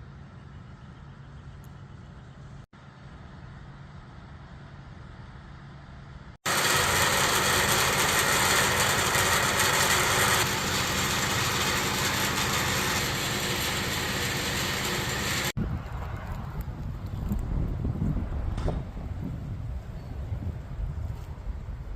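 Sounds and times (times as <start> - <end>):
truck engine running: 6.5 - 15.6.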